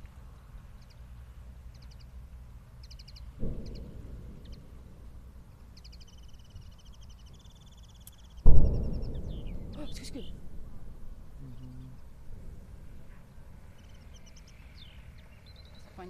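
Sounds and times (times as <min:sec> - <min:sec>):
steady low rumble: 0:00.0 - 0:16.0
birds chirping trills: 0:00.7 - 0:16.0
distant explosion boom: 0:03.3 - 0:15.2.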